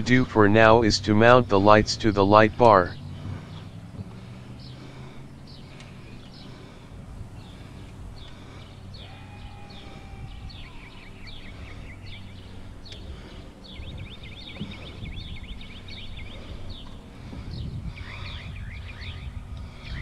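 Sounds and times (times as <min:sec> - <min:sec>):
songbirds singing: 0:00.0 - 0:20.0
steady low hum: 0:00.0 - 0:20.0.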